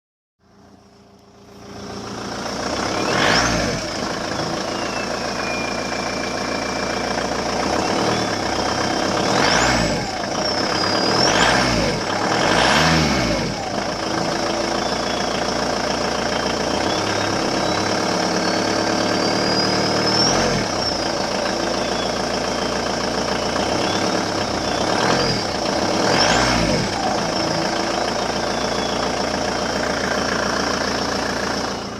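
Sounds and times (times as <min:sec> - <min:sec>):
diesel engine revving: 0:00.5 - 0:31.9
turbocharger whistling whine: 0:00.8 - 0:31.9.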